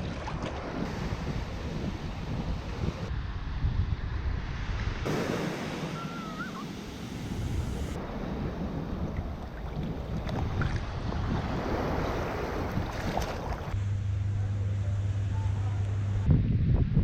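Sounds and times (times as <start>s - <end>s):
waves washing onto beach: 0.0s - 3.1s, 4.6s - 13.8s
wind buffeting microphone: 0.0s - 13.8s, 16.2s - 17.0s.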